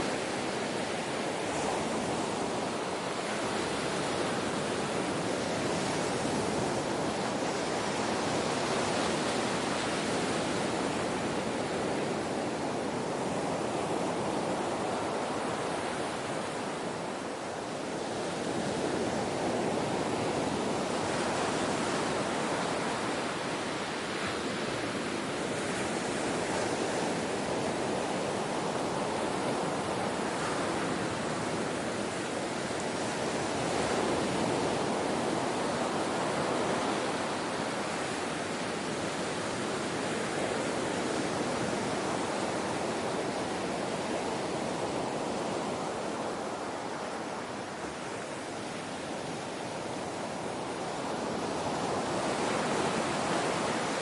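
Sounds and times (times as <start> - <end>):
ocean waves surf rushing: 0.0 - 54.0.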